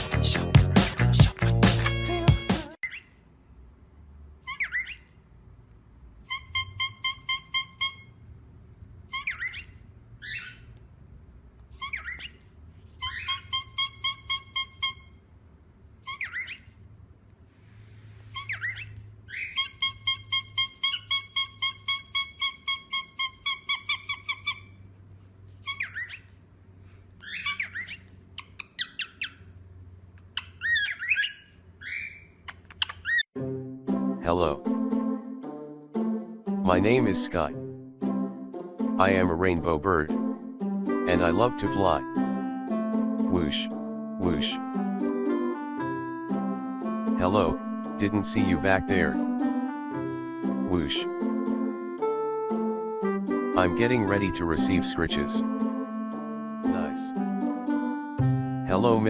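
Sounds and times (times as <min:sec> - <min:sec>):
bird squawks: 0:04.4 - 0:05.2, 0:06.2 - 0:08.2, 0:09.1 - 0:10.8, 0:11.8 - 0:15.2, 0:16.0 - 0:16.8, 0:18.3 - 0:24.8, 0:25.6 - 0:26.4, 0:27.2 - 0:29.6, 0:30.3 - 0:33.2
bird rapid beeping calls: 0:06.3 - 0:08.2, 0:09.1 - 0:10.7, 0:13.0 - 0:15.2, 0:18.4 - 0:24.7, 0:30.4 - 0:33.2.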